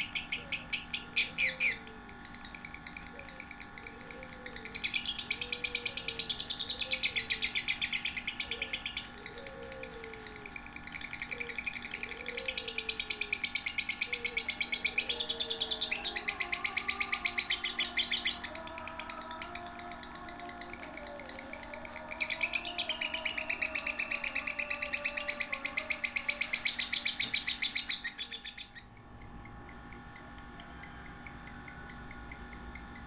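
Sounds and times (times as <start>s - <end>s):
bird chattering trills: 0.0s - 33.0s.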